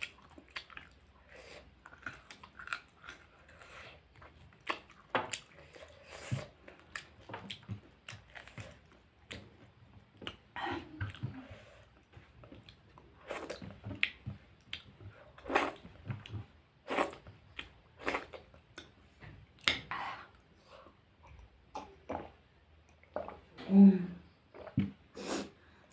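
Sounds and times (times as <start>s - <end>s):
person chewing and biting: 1.8s - 9.5s.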